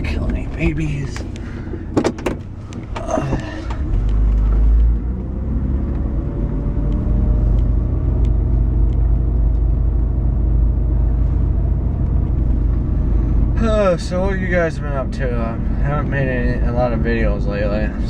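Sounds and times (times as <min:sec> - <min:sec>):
car engine and road rumble: 0:00.0 - 0:18.0
knocks: 0:01.9 - 0:03.4.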